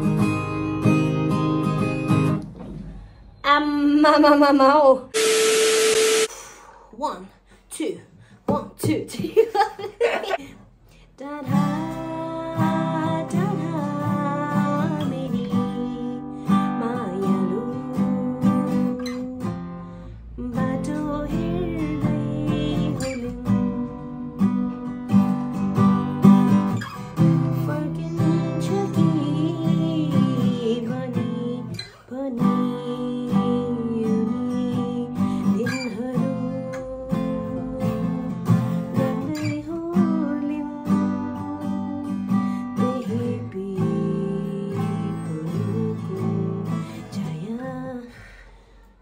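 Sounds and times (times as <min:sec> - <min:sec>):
acoustic guitar strumming: 0:12.6 - 0:32.6.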